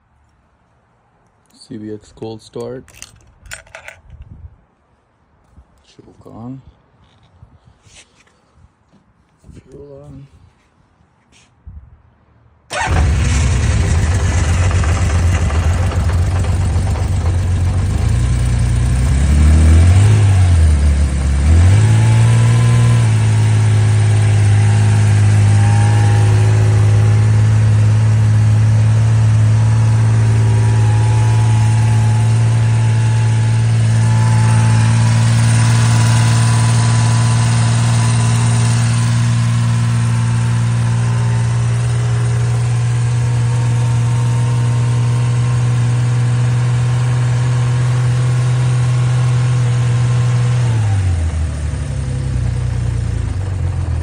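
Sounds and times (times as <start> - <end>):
motorcycle engine idling: 12.7 - 19.1, 51.2 - 54.0.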